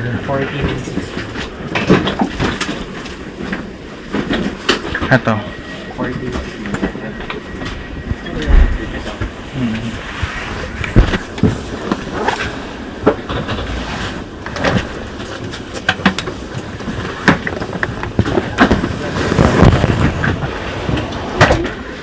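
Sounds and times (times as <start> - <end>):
steady background rumble: 0.0 - 22.0
luggage knocking and clattering: 0.6 - 5.0, 14.5 - 21.9.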